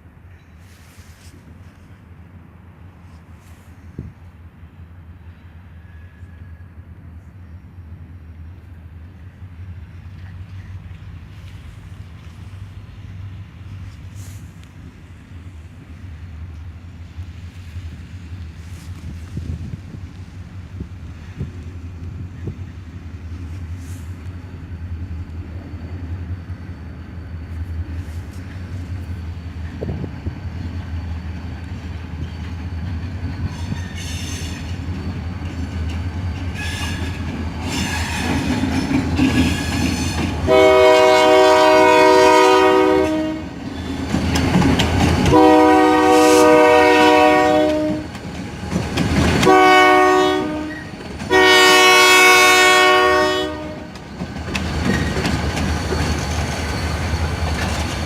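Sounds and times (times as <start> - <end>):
diesel locomotive engine rumble: 0.0 - 58.0
train air horn: 5.7 - 6.7, 36.6 - 38.5, 39.4 - 43.6, 45.2 - 48.2, 49.4 - 54.0.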